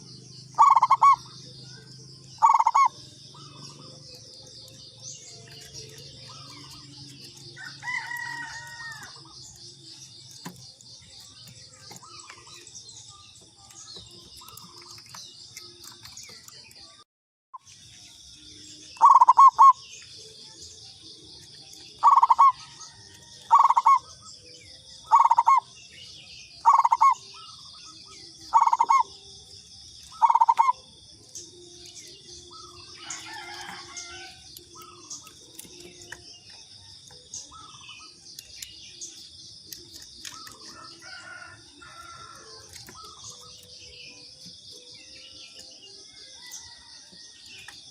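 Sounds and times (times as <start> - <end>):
dove cooing: 0.0 - 4.8, 19.0 - 19.8, 22.0 - 24.1, 25.1 - 25.7, 26.6 - 27.6, 28.5 - 29.2, 30.1 - 30.8
high insect trill: 0.0 - 16.6, 17.7 - 47.9.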